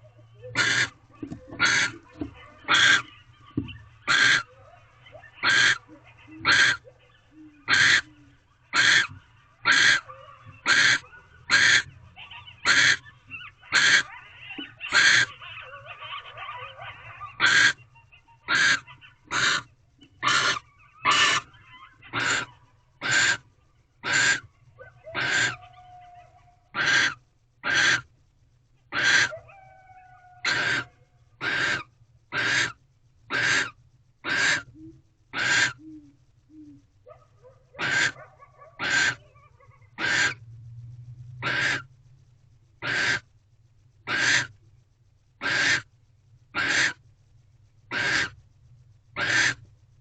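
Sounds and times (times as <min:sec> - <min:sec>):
owl hissing calls: 0:00.4 - 0:02.1, 0:02.7 - 0:03.4, 0:04.0 - 0:15.8, 0:17.1 - 0:28.1, 0:28.9 - 0:36.9, 0:37.7 - 0:40.4, 0:41.4 - 0:41.9, 0:42.8 - 0:43.3, 0:44.0 - 0:44.6, 0:45.4 - 0:45.9, 0:46.5 - 0:47.0, 0:47.9 - 0:48.4, 0:49.1 - 0:49.6.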